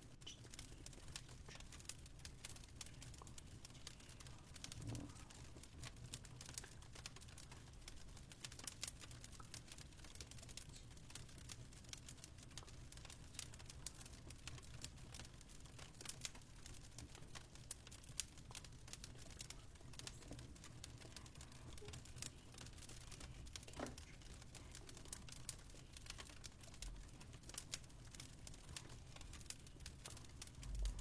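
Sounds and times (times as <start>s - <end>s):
wood fire crackling: 0.0s - 31.0s
low steady rumble: 30.6s - 31.0s.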